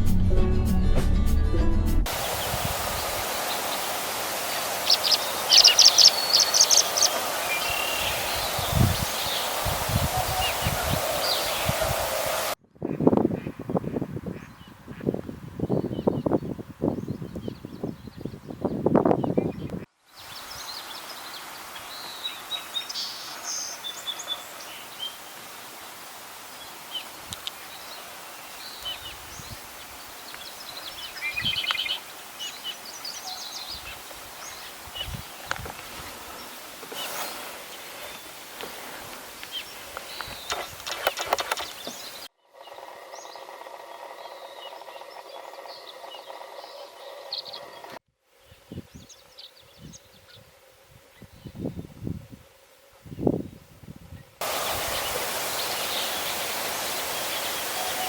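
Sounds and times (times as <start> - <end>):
steady background hiss: 2.1 - 12.6, 20.0 - 42.2, 48.3 - 58.0
birds chirping and trilling: 2.1 - 25.2, 26.6 - 50.4, 53.2 - 58.0.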